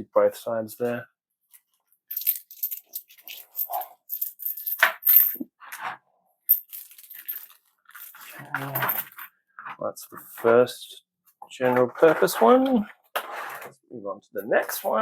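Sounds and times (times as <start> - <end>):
metal coins clinking: 2.1 - 5.4, 6.5 - 9.3.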